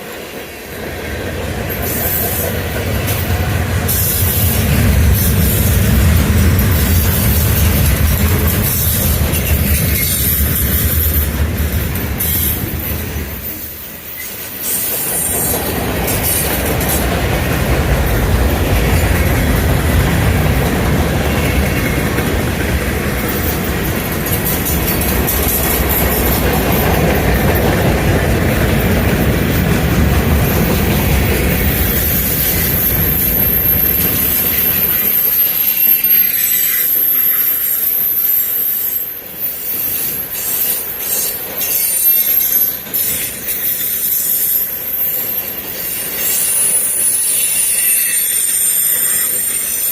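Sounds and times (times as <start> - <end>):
train wheels rumbling on rail: 0.0 - 49.9
high wheel squeal: 1.7 - 17.6, 23.1 - 27.9, 29.4 - 49.9.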